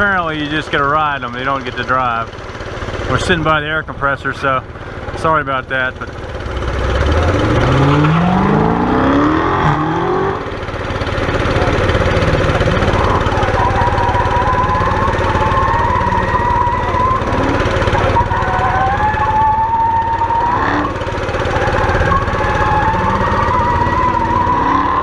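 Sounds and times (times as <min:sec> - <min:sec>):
car engine revving: 0:00.0 - 0:25.0
air compressor drone: 0:02.3 - 0:25.0
tyres squealing: 0:07.1 - 0:25.0.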